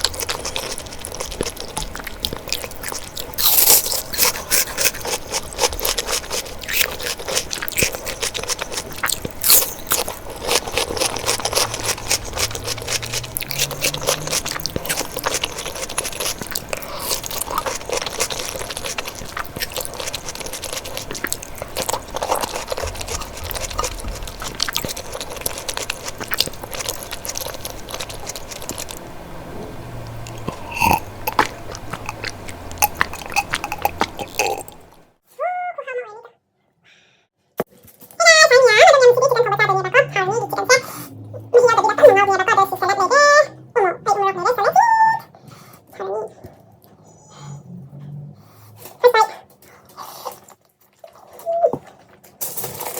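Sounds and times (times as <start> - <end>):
wet mouth clicks: 0.0 - 29.0, 30.0 - 35.0
person chewing and crunching food: 0.0 - 35.2, 44.1 - 52.9.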